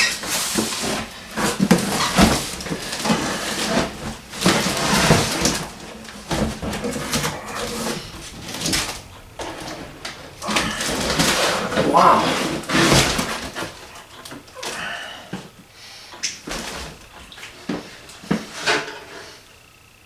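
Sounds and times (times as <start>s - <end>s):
rustling packaging: 0.0s - 14.8s.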